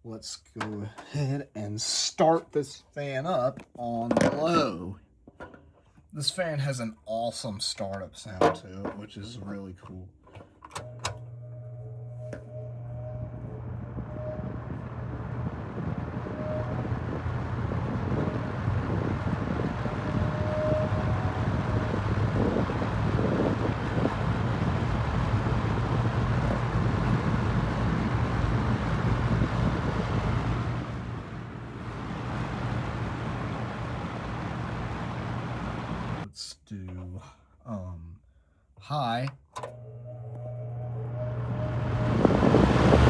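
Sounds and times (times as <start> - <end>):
box fan running: 10.8 - 36.3, 39.6 - 43.0.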